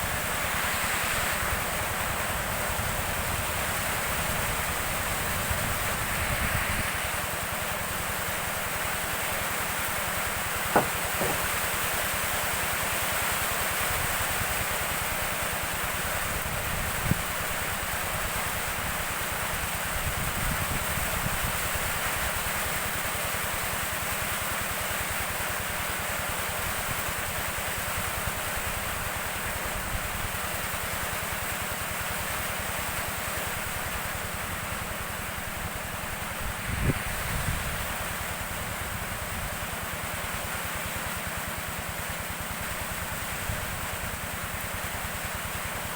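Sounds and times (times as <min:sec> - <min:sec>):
rain hissing: 0:00.0 - 0:12.2
wind rumbling on microphone: 0:02.9 - 0:07.3, 0:36.4 - 0:37.9
single knock: 0:10.7 - 0:11.6.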